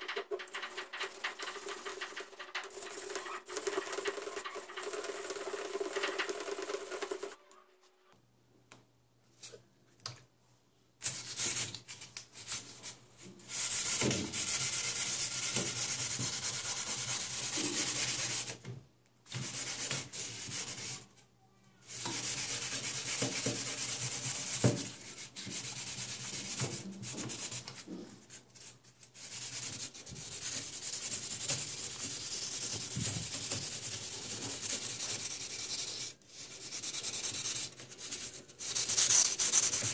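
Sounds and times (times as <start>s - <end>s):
sandpaper scraping metal: 0.5s - 7.4s, 29.2s - 39.9s.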